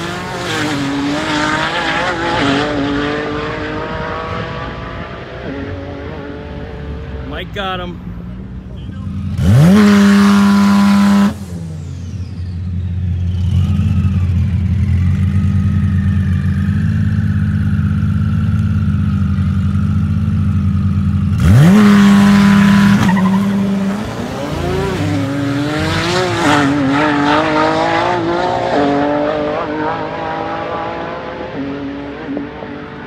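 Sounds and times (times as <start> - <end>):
cars accelerating away: 0.0 - 7.5, 9.0 - 16.8, 21.2 - 33.0
car engine revving: 0.0 - 33.0.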